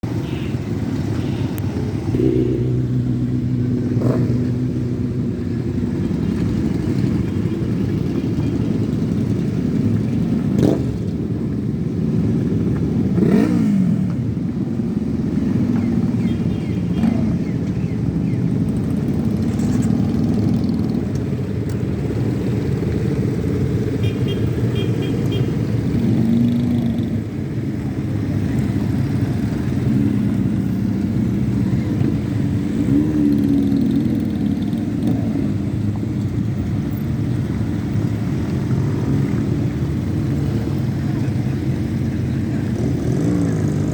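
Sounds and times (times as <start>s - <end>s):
motorcycles riding past: 0.0s - 43.9s.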